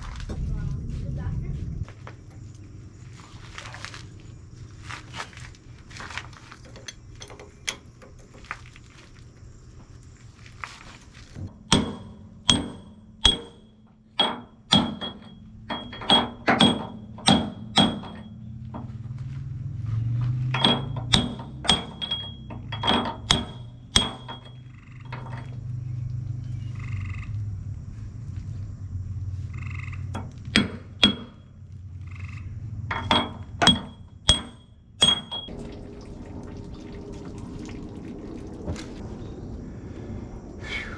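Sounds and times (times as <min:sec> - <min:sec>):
low steady hum: 0:00.0 - 0:40.9
hammer blows on metal: 0:11.6 - 0:18.4, 0:20.5 - 0:24.5, 0:32.9 - 0:35.5.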